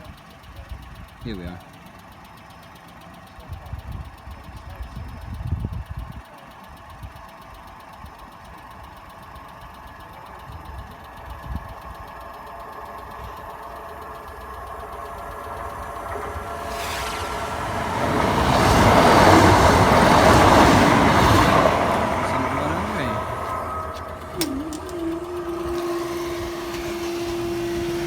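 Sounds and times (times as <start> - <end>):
train engine running: 0.0 - 28.0
low uneven rumbling: 11.6 - 28.0.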